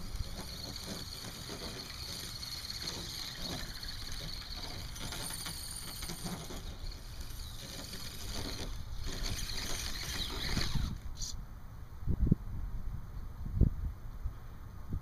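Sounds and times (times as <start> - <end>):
small electric motor whining: 0.0 - 11.3.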